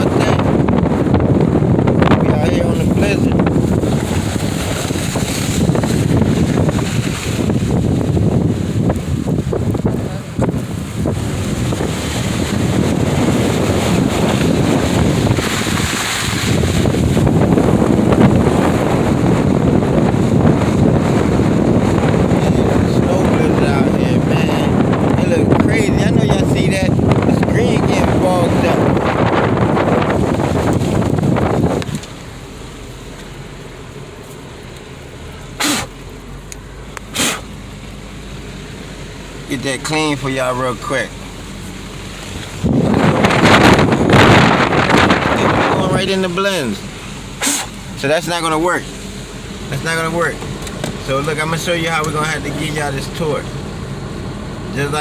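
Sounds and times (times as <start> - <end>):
car humming: 0.0 - 55.0
wind buffeting microphone: 0.0 - 55.0
short sharp squeaks: 47.4 - 47.8.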